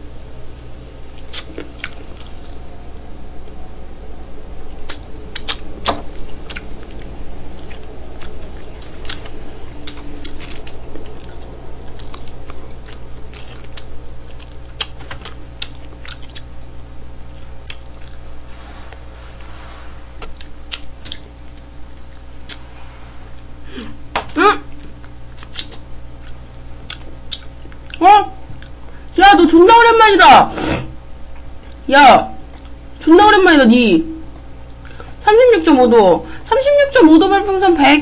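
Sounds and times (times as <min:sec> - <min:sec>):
steady low hum: 0:00.0 - 0:38.0
close-miked chewing and smacking: 0:01.1 - 0:03.6, 0:04.7 - 0:18.3, 0:20.2 - 0:22.7, 0:24.7 - 0:29.0, 0:31.3 - 0:32.9.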